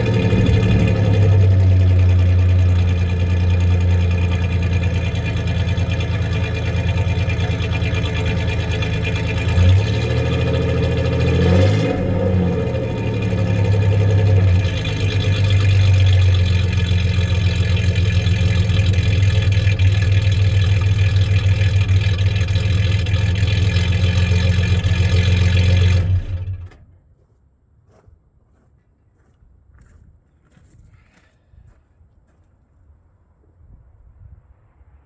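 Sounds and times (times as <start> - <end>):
car engine idling with misfire: 0.0 - 26.8.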